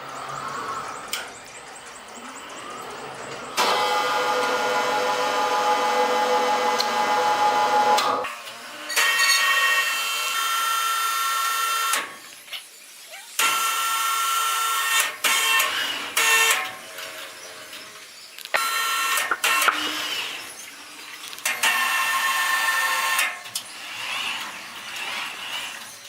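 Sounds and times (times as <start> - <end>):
sawmill saw cutting wood: 3.6 - 12.0.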